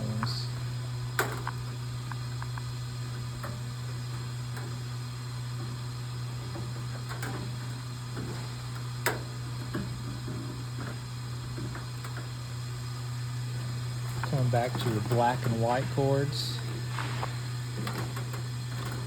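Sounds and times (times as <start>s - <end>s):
wire leads clicking into terminals: 0.0s - 12.9s, 13.5s - 19.0s
steady low hum: 0.0s - 19.0s.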